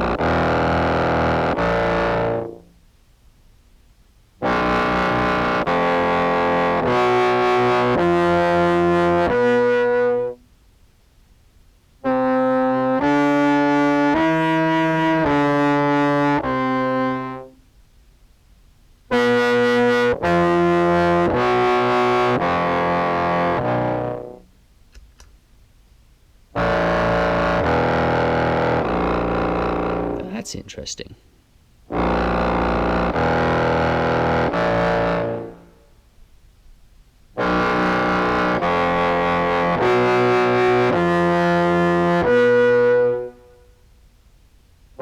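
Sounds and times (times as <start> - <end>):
distorted clarinet notes: 0.0 - 2.8, 4.4 - 10.4, 12.0 - 17.6, 19.1 - 24.4, 26.6 - 31.0, 31.9 - 35.8, 37.4 - 43.9.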